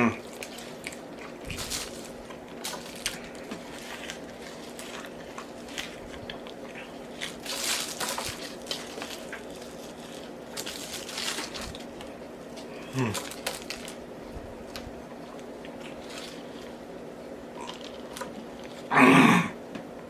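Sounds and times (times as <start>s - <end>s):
person chewing with open mouth: 0.0s - 10.6s, 11.6s - 16.9s, 17.5s - 19.0s
steady low hum: 0.0s - 20.0s.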